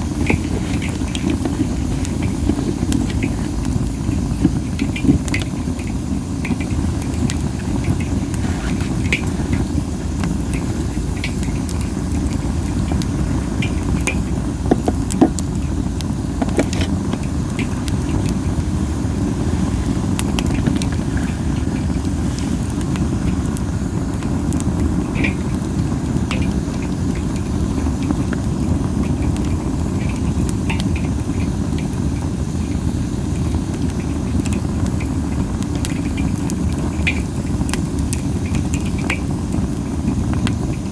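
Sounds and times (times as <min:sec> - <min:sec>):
wood fire popping and crackling: 0:00.0 - 0:40.9.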